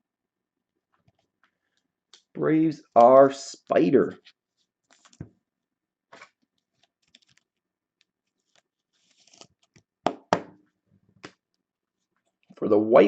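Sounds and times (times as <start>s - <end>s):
cards clicking and rustling: 4.9s - 5.3s, 6.1s - 9.9s.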